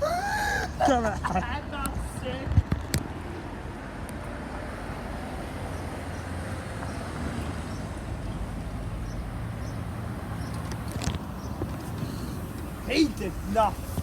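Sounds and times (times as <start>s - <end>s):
bus diesel engine passing: 3.2s - 14.0s.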